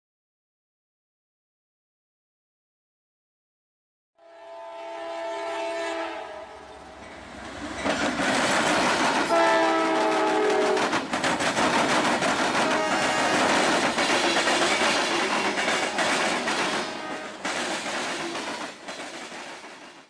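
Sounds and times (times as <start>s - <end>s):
multi-note air horn blasts: 4.2s - 6.6s, 9.3s - 10.8s, 16.8s - 17.5s
train rumbling: 5.0s - 20.0s
wheels clattering over rail diamond: 6.8s - 20.0s.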